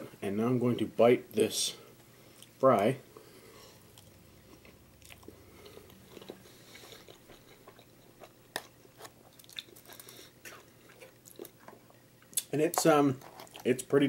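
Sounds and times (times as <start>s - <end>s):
person chewing crunchy food: 3.7s - 12.5s.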